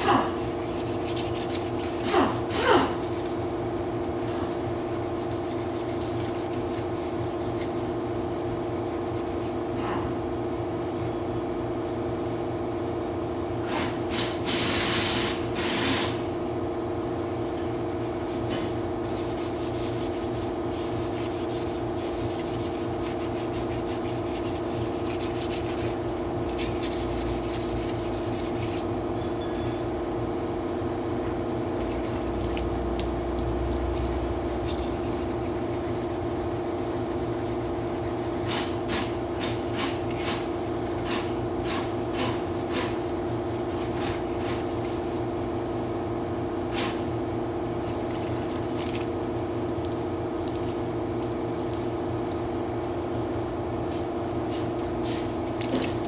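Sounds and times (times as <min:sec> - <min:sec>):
sanding rasping scrape: 0:00.2 - 0:02.1, 0:03.0 - 0:09.6, 0:17.9 - 0:28.9, 0:34.0 - 0:39.9.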